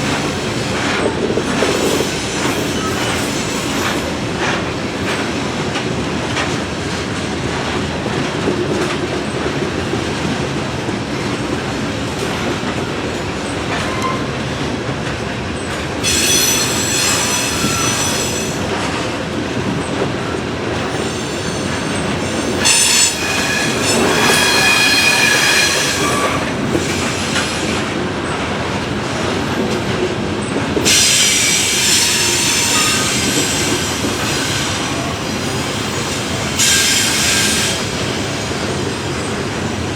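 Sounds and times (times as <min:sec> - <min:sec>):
freight train wheels rumbling: 0:00.0 - 0:39.9
shrill wheel squeal: 0:00.1 - 0:04.2, 0:13.5 - 0:14.4, 0:16.0 - 0:18.8, 0:20.8 - 0:27.8, 0:30.9 - 0:39.0.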